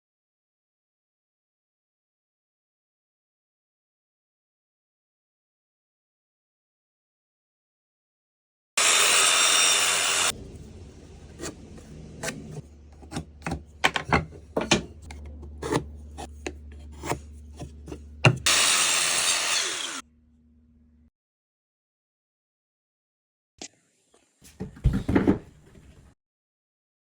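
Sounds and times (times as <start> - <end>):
woodworking tool rasping on wood: 15.0 - 20.0.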